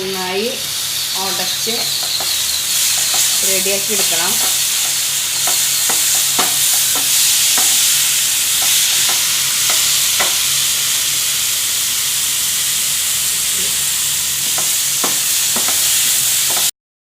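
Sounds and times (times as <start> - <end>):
food sizzling in a pan: 0.0 - 16.7
spoon clicking against a pan: 1.8 - 10.6.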